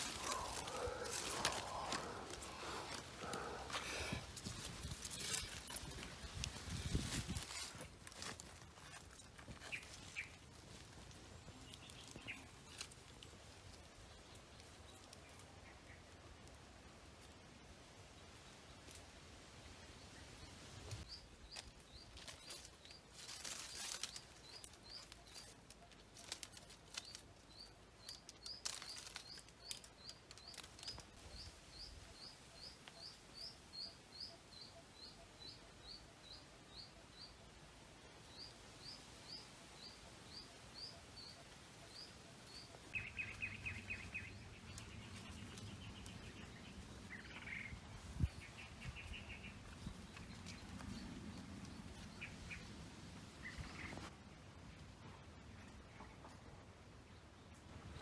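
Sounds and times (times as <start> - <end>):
rustling: 0.0 - 15.5, 20.9 - 31.2.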